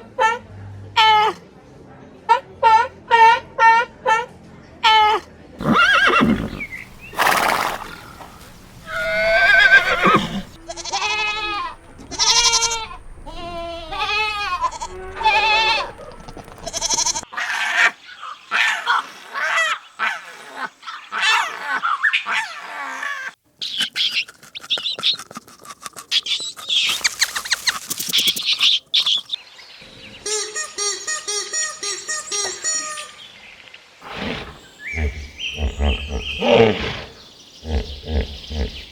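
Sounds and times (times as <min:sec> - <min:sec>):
quavering bleats: 0:05.6 - 0:17.4, 0:34.0 - 0:38.9
scratchy animal sounds: 0:05.7 - 0:17.7, 0:21.1 - 0:29.4.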